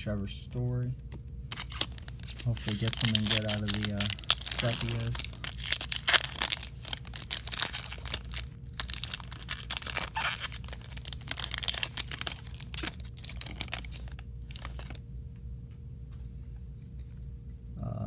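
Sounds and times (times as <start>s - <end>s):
wrapper tearing and crinkling: 1.5s - 15.0s.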